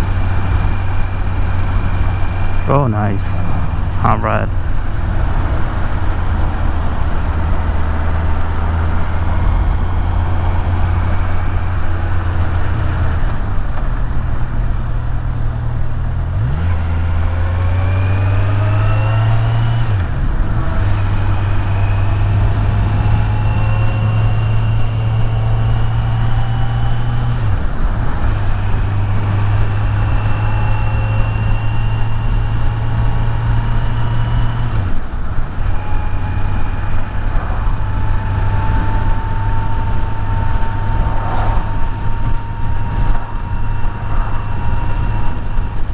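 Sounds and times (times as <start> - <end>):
motorcycle engine accelerating: 3.4 - 45.9
wind rush: 37.2 - 45.9.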